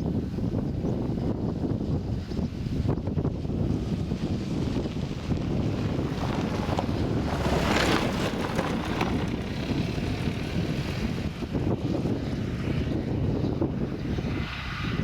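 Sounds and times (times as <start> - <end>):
wind buffeting microphone: 0.0 - 15.0
tractor and baler running: 3.1 - 14.7.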